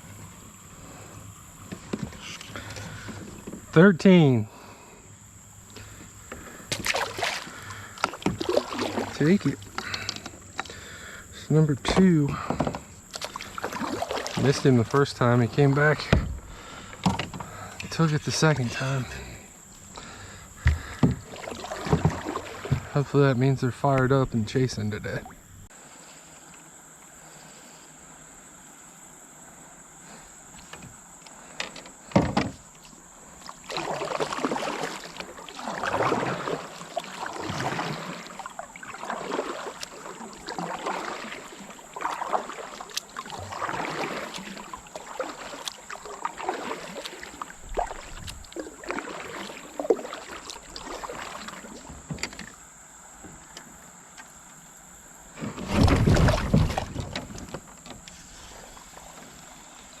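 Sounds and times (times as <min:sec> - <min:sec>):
kayak paddle swishing through water: 0:00.0 - 0:03.8, 0:04.5 - 0:24.0, 0:32.0 - 1:00.0
deep water rush: 0:00.0 - 0:26.0, 0:33.2 - 0:52.6, 0:55.3 - 0:57.6.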